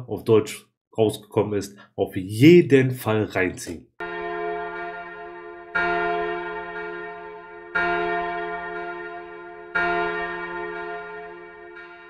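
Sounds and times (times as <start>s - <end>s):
large bell tolling: 4.0s - 12.0s.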